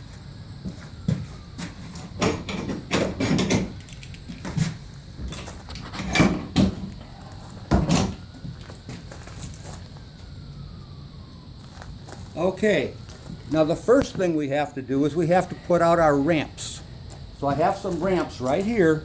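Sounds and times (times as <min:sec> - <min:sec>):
shed door knocking and rattling: 0:02.2 - 0:03.8.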